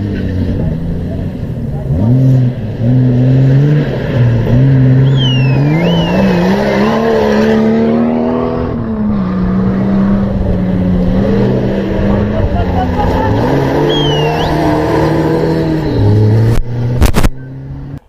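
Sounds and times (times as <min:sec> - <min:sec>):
race vehicle engine revving: 0:00.0 - 0:18.0
high-pitched falling squeals: 0:05.0 - 0:07.5, 0:13.0 - 0:16.5.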